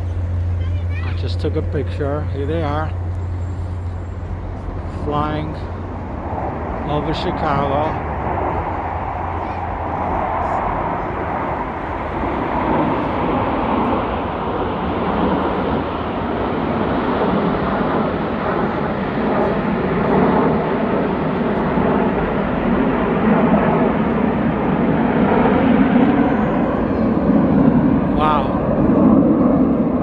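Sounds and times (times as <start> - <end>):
jet aircraft roar: 0.0 - 30.0.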